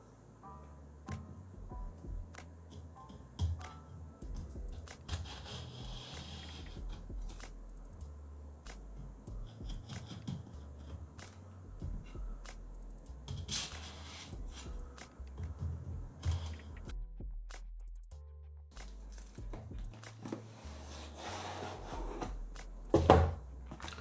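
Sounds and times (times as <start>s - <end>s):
cardboard rasp: 4.8s - 7.5s, 9.4s - 11.3s, 20.2s - 22.4s.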